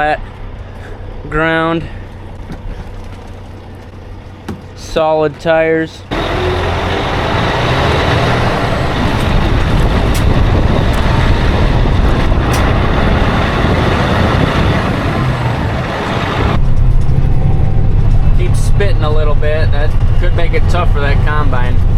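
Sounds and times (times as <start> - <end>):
loader engine running under load: 6.1 - 20.4.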